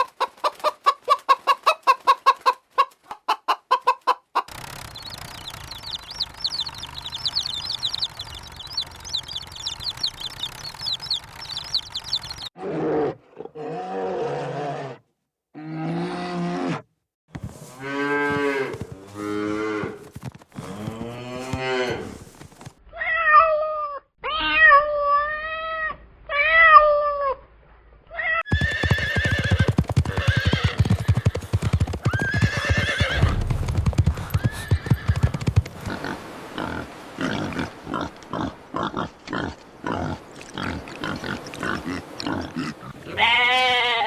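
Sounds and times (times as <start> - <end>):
rapidly pulsing animal call: 28.5 - 35.8.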